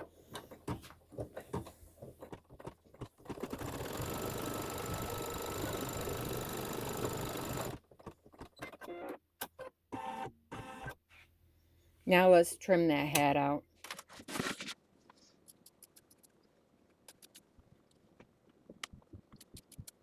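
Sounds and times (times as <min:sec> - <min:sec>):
embroidery machine stitching: 0:03.0 - 0:07.8.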